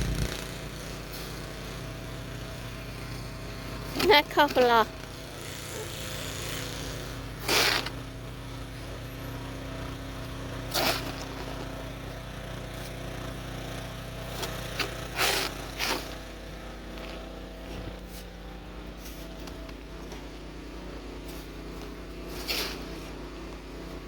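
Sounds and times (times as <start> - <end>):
low machine hum: 0.0 - 24.0
snow shovel scraping: 2.8 - 13.0, 14.2 - 20.3, 21.2 - 24.0.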